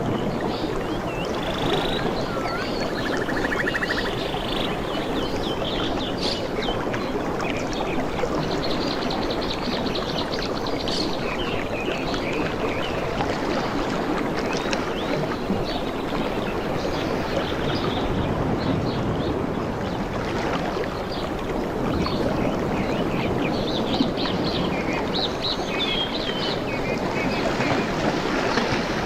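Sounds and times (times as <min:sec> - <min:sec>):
rushing water: 0:00.0 - 0:29.0
birds chirping: 0:00.2 - 0:10.1
bird trills: 0:01.4 - 0:04.8.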